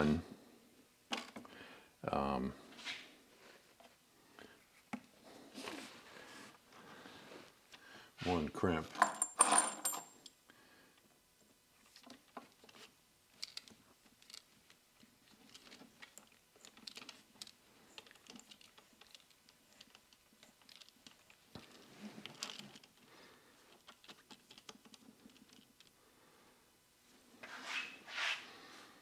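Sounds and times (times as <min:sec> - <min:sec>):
small metal parts clicking: 0:13.3 - 0:14.6, 0:15.3 - 0:23.0.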